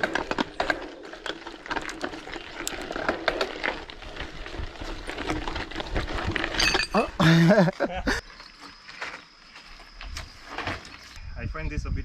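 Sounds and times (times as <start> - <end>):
bike clicks and rattles: 0.0 - 11.2
bike tyres crunching over stones: 0.0 - 11.2.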